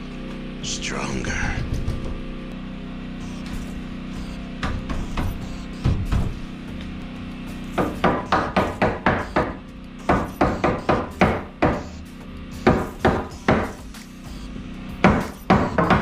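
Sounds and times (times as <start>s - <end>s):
hammer driving nails into wood: 7.8s - 11.9s, 12.6s - 13.8s, 15.0s - 16.0s.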